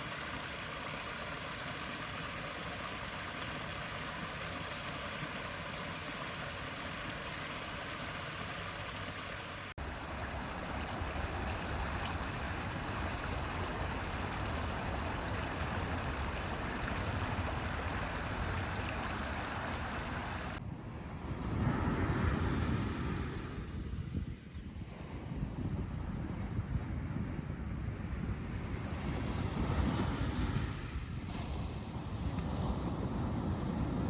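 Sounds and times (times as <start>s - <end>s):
running water rushing: 0.0s - 20.6s.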